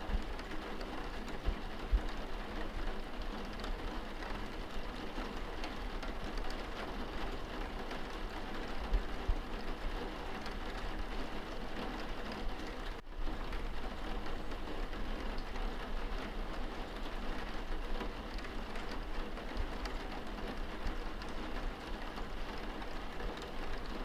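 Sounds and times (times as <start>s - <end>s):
rain on window glass: 0.0s - 24.0s.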